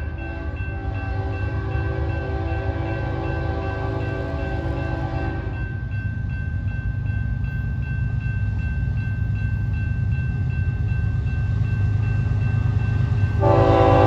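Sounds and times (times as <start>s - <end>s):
crossing bell dinging: 0.0s - 14.0s
diesel locomotives rumbling: 0.0s - 14.0s
train horn blast: 0.1s - 5.6s, 13.4s - 14.0s.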